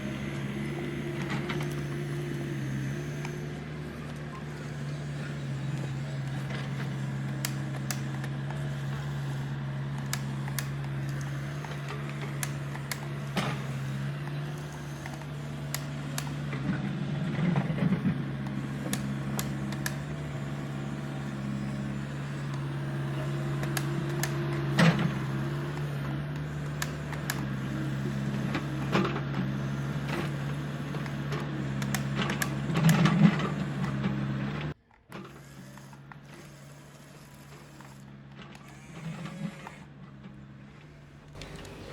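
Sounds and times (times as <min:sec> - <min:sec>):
small electric motors humming: 0:00.0 - 0:41.9.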